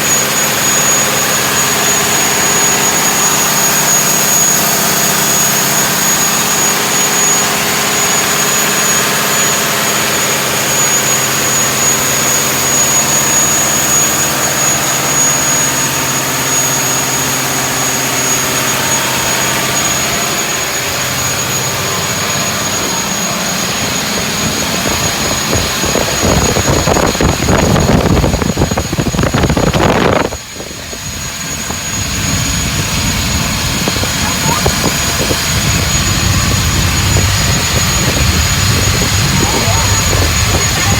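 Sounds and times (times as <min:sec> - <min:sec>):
steady high whistle: 0:00.0 - 0:28.6
diesel engine revving: 0:00.0 - 0:40.9.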